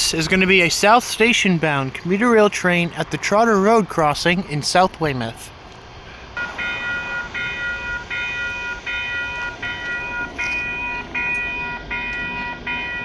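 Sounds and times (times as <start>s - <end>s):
railroad crossing bell ringing: 6.4s - 13.0s.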